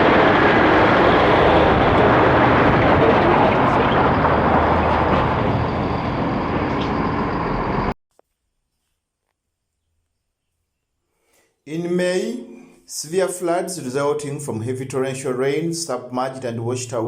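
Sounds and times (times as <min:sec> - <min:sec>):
road traffic rumble: 0:00.0 - 0:07.9.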